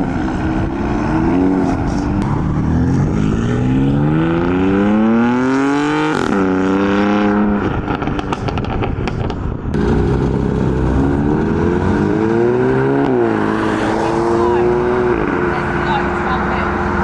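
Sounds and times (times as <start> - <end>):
car engine accelerating hard: 0.0 - 8.9, 9.8 - 17.0
exhaust crackling: 7.6 - 17.0.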